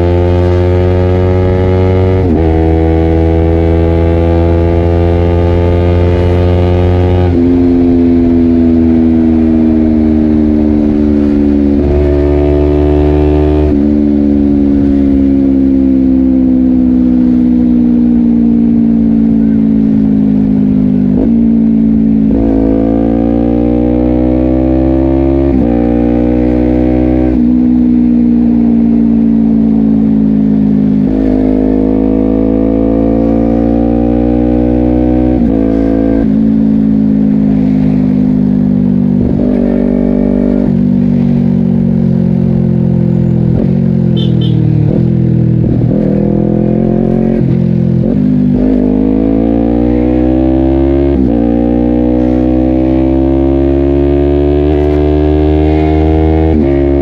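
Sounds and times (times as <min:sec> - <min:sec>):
motorcycle engine revving with upshifts: 0:00.0 - 0:57.0.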